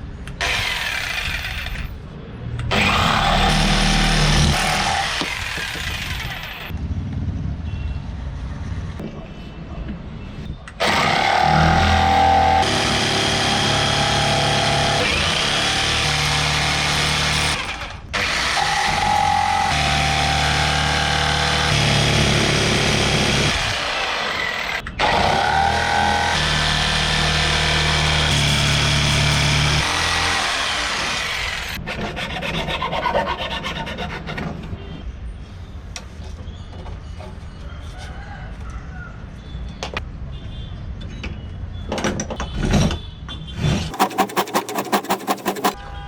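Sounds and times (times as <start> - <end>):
scraping on wood: 43.9 - 45.8
tools rasping on wood: 43.9 - 45.8.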